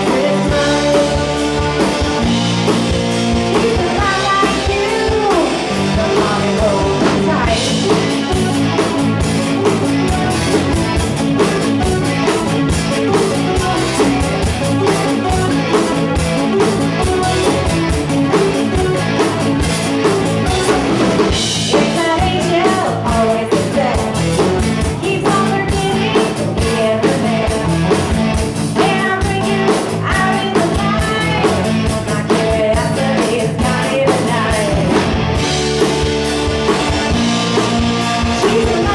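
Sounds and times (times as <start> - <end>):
person singing: 0.0 - 1.8, 3.5 - 8.6, 21.7 - 24.4, 25.0 - 27.8, 28.8 - 35.0, 38.3 - 38.9
drum kit: 0.0 - 38.9
guitars: 0.0 - 38.9.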